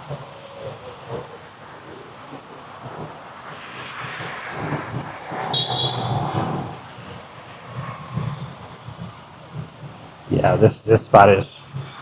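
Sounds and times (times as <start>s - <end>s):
vehicle passing: 2.1s - 9.1s
brief high squeal: 5.5s - 6.8s.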